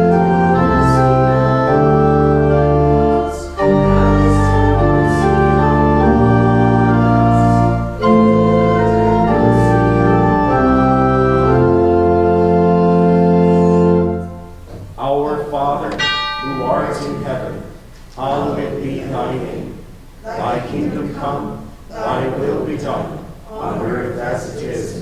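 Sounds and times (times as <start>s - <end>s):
church organ chords: 0.0s - 14.8s, 15.4s - 18.6s
singing: 16.7s - 25.0s.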